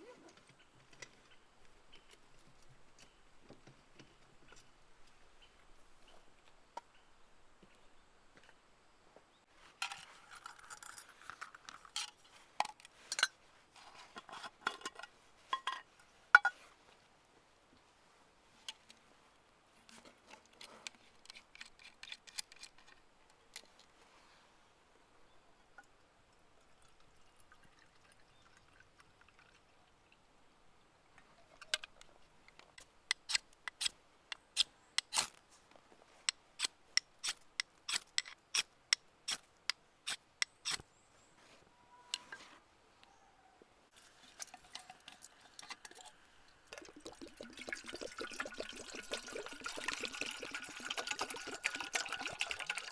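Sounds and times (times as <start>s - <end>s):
liquid being poured: 43.9s - 52.9s.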